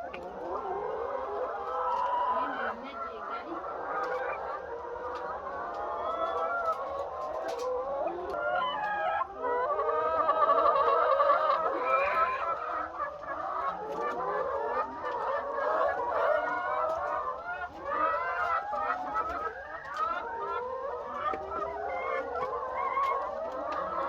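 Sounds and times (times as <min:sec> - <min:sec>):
hens clucking: 0:00.0 - 0:24.0.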